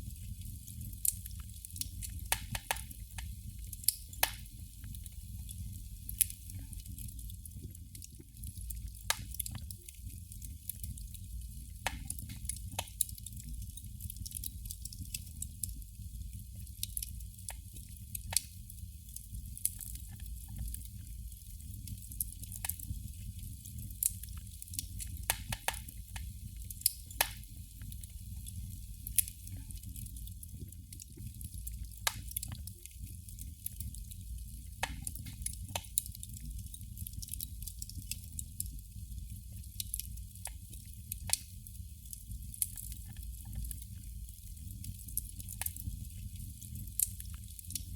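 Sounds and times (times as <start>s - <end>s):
candle flame crackling: 0.0s - 47.9s
faint steady hiss: 0.0s - 47.9s.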